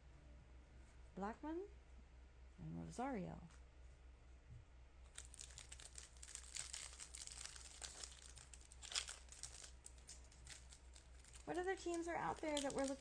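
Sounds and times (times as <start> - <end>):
foil wrapper crinkling and tearing: 5.1 - 13.0.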